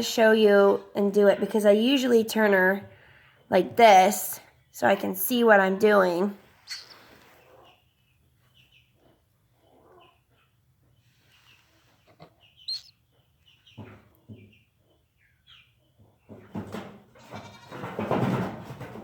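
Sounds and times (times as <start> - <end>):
chick giving high peeps: 6.6 - 7.8, 12.4 - 13.1.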